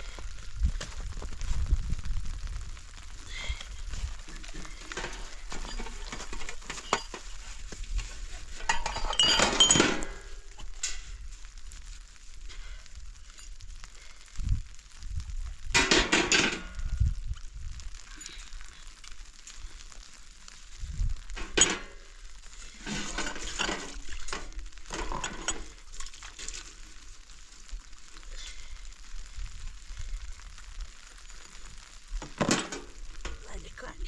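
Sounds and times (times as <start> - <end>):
steady hiss: 0.0 - 34.0
clinks and scrapes: 3.6 - 11.3, 15.8 - 16.9, 21.2 - 27.0, 32.2 - 33.5.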